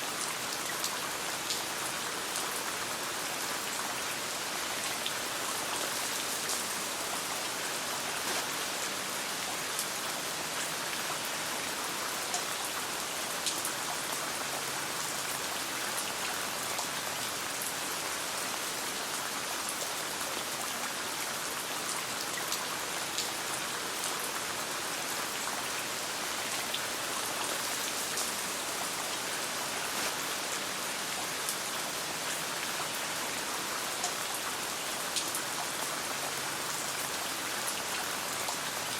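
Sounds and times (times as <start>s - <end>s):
rain falling on a tent: 0.0s - 38.9s.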